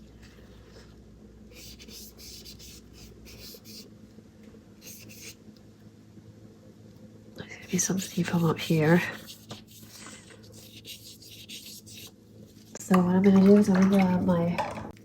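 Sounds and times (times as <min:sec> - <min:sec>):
faint room hum: 0:00.0 - 0:15.0
paintbrush strokes on paper: 0:07.7 - 0:12.7.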